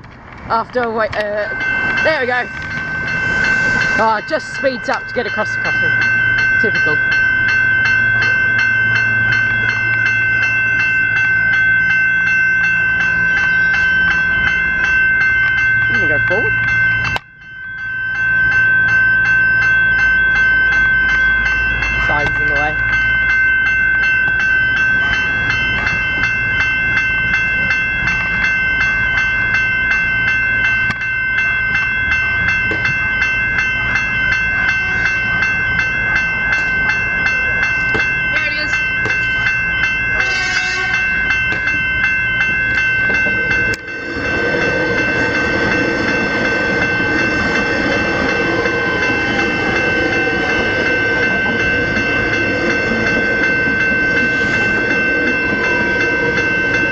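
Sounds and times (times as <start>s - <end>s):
level-crossing bells ringing: 0.5s - 56.9s.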